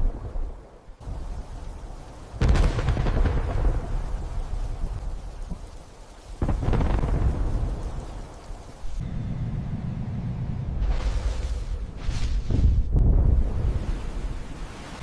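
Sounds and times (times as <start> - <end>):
low thunder rumble: 0.0 - 14.8
rain: 0.0 - 15.0
thunder crack rolling: 2.4 - 5.2, 6.4 - 8.4.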